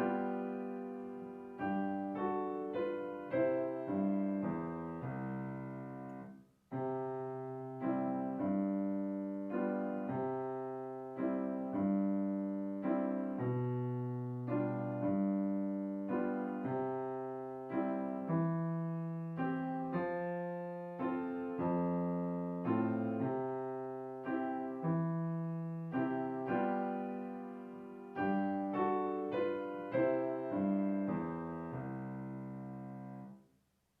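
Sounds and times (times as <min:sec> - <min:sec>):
solo piano chords: 0:00.0 - 0:33.5.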